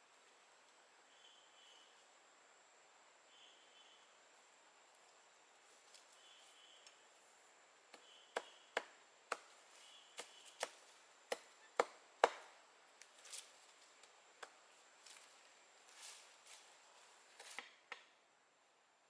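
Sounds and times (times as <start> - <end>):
blade chopping wood: 10.2 - 12.5.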